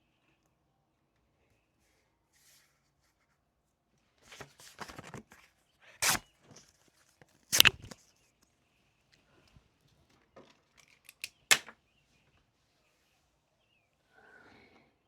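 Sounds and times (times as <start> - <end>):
paper rustling: 4.2 - 6.8, 7.5 - 8.0.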